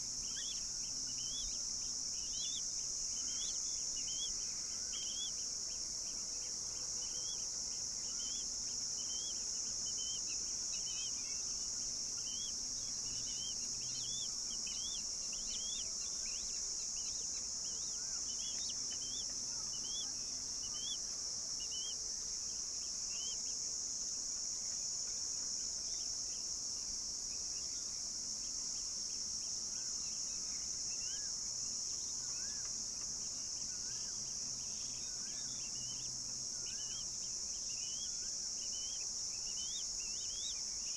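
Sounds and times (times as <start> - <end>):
insects droning: 0.0 - 40.9
bird chirps: 0.2 - 22.0, 33.6 - 40.9.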